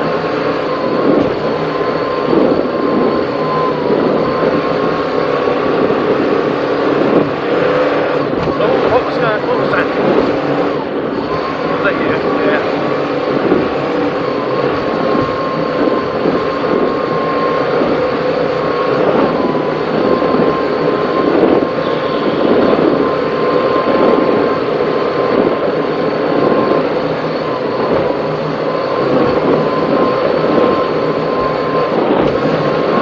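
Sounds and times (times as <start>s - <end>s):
hull noise through rough sea: 0.0s - 33.0s
powerboat engines running hard: 0.0s - 33.0s.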